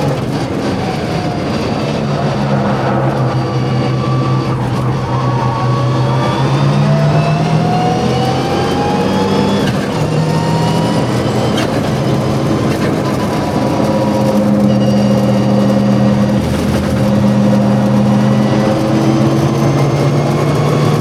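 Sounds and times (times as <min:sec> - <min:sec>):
rally car engine accelerating: 0:00.0 - 0:21.0.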